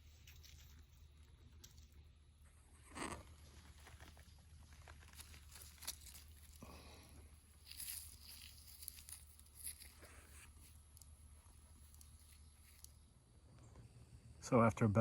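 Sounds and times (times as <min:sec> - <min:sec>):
steady low hum: 0:00.0 - 0:15.0
faint crunches and clicks: 0:02.7 - 0:13.6
rustle: 0:02.8 - 0:13.0.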